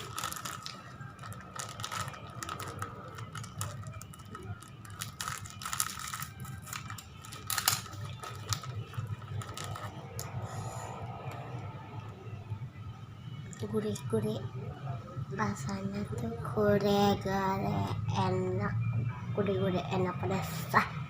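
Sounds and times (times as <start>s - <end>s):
chips crunching while chewed: 0.0s - 10.4s.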